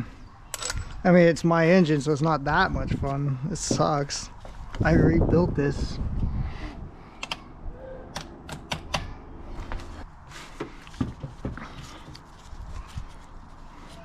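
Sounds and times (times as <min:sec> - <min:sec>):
tools and metal parts clinking: 0:00.5 - 0:01.0.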